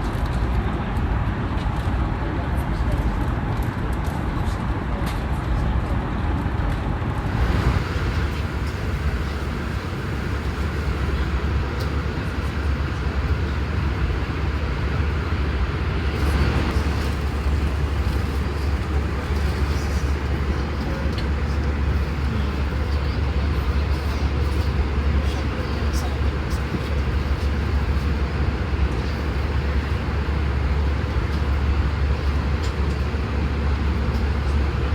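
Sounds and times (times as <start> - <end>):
airplane cabin engine drone: 0.0 - 34.9.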